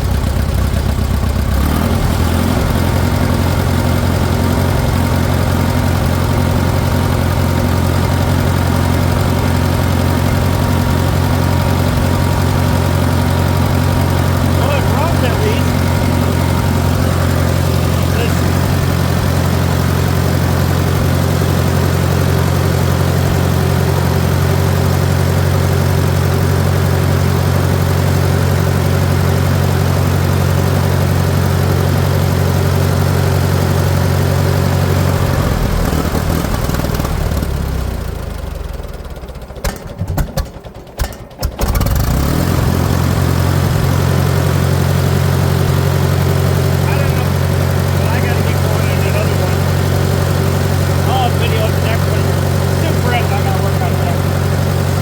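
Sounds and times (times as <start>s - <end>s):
tractor engine idling: 0.0s - 55.0s
engine pops: 38.8s - 42.3s.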